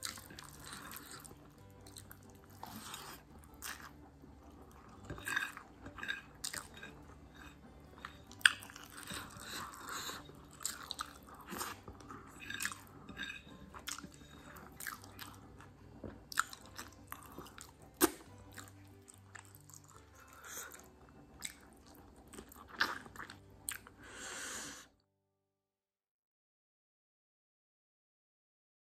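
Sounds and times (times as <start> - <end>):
person chewing food: 0.0 - 24.9
wet mouth sounds: 16.3 - 18.8.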